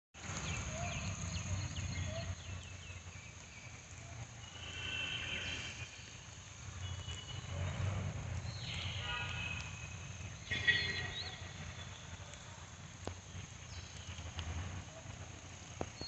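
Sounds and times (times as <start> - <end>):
rushing water rumble: 0.2 - 16.0
bird whistling: 10.4 - 11.9.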